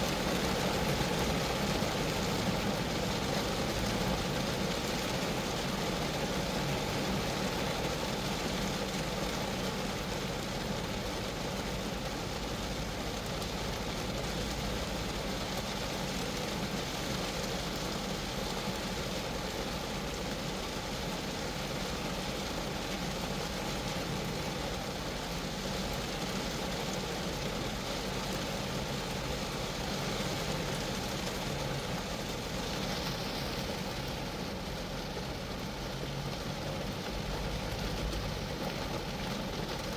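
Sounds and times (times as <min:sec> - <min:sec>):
rain on a car roof: 0:00.0 - 0:39.9.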